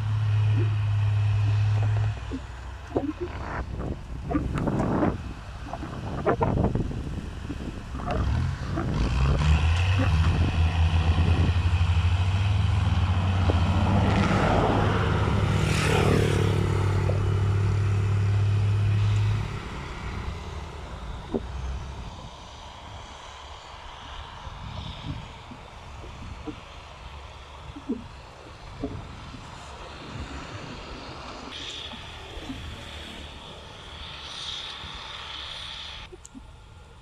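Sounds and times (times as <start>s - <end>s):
tractor diesel engine running: 0.0s - 36.1s.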